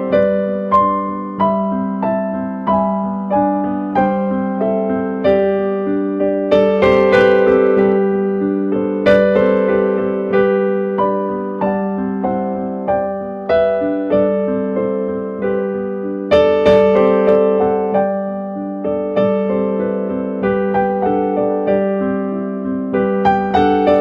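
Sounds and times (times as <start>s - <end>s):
slow solo piano music: 0.0s - 24.0s.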